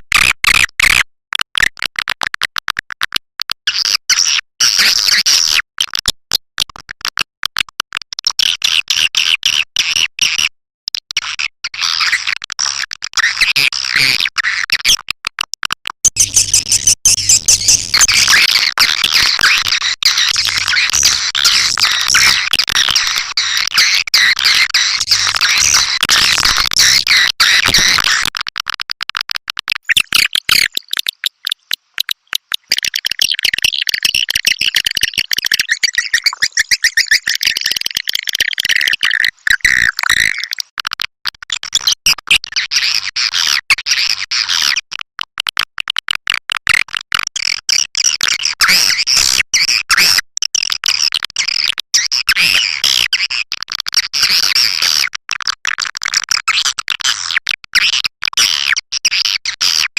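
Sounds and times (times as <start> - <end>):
swiftlets twittering: 29.9 - 40.6.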